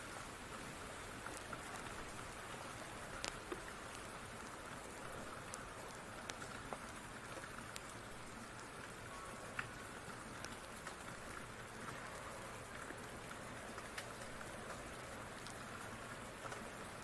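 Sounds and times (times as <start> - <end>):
steady rain: 0.0 - 17.0
wood fire crackling: 1.1 - 17.0.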